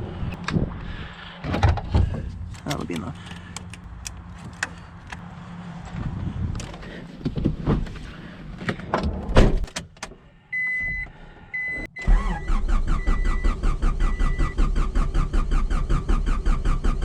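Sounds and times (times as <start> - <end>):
starter motor cranking engine: 12.0 - 17.0.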